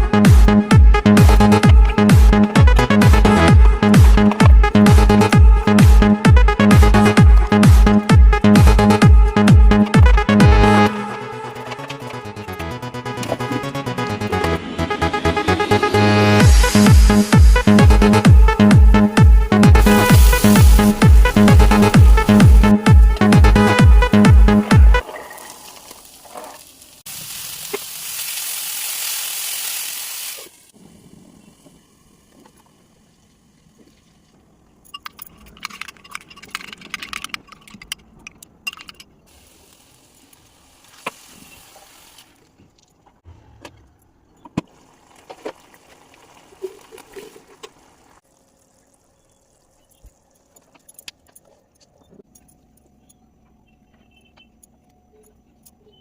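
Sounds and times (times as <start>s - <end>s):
loud cooking hiss: 19.8s - 21.6s, 25.4s - 31.1s.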